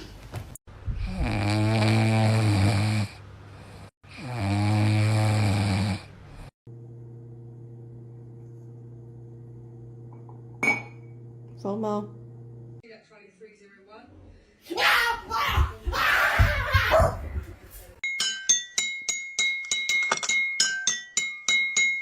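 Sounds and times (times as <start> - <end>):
pet snoring loudly: 1.0 - 6.6
steady low hum: 6.1 - 12.8.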